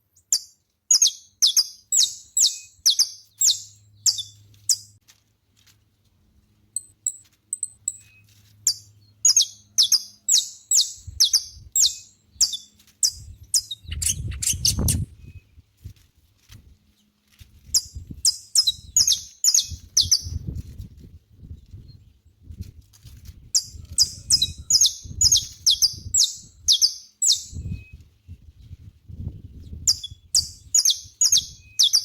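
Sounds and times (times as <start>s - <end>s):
finch singing high chirps: 0.2s - 5.0s, 6.8s - 15.5s, 17.7s - 20.4s, 23.5s - 28.0s, 29.5s - 32.0s.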